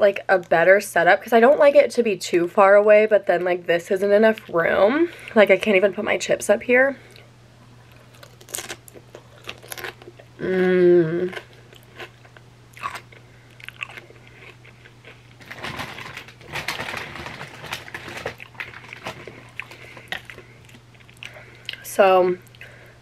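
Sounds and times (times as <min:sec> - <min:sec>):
chip crunching: 0:07.1 - 0:10.3, 0:11.2 - 0:22.7
person humming: 0:10.4 - 0:11.3.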